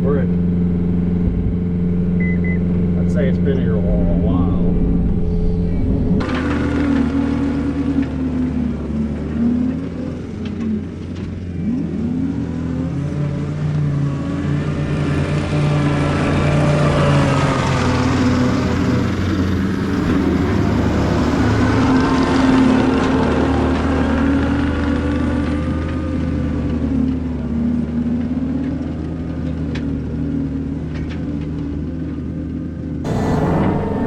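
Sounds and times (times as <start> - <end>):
diesel engine under load: 0.0 - 34.0
hiss and whine: 0.2 - 6.6, 33.1 - 34.0.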